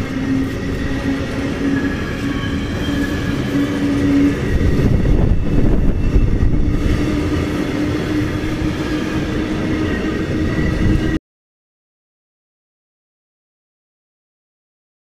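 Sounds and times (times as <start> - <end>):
train wheels rumbling on rail: 0.0 - 11.2.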